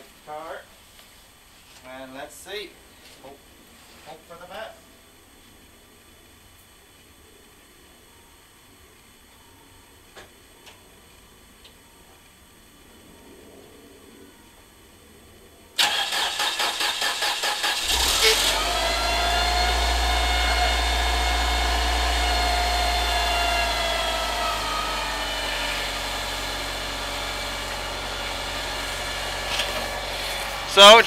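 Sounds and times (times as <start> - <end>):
car engine idling: 15.8 - 31.0
starter motor cranking: 15.8 - 31.0.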